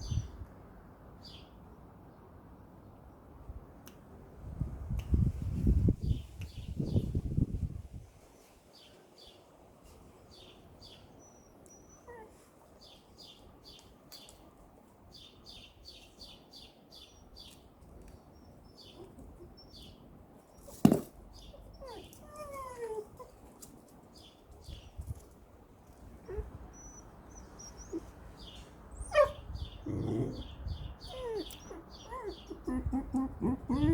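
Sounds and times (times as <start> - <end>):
small birds chirping: 10.3 - 14.5, 15.1 - 23.3, 24.1 - 25.3, 26.0 - 33.9.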